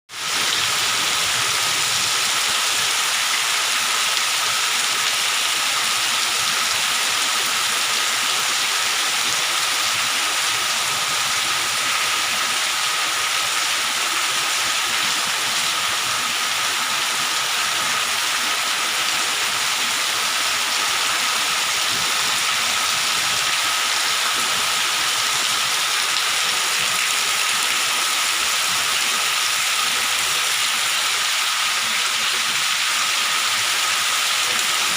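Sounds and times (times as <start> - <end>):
heavy rain hissing: 0.1 - 34.9.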